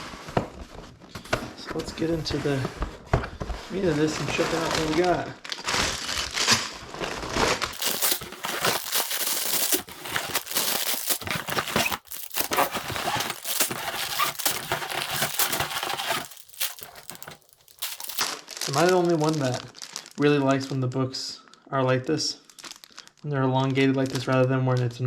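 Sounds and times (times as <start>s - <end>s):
packaging crinkling and tearing: 4.5s - 20.2s, 22.5s - 23.1s.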